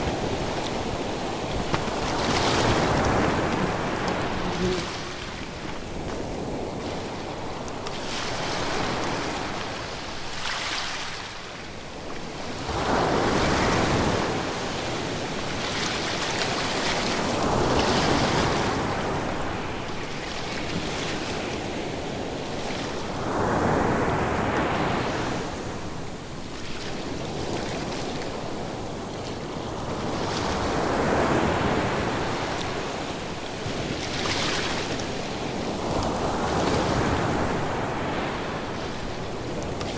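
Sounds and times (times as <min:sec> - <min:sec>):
ocean waves breaking on shore: 0:00.0 - 0:11.4.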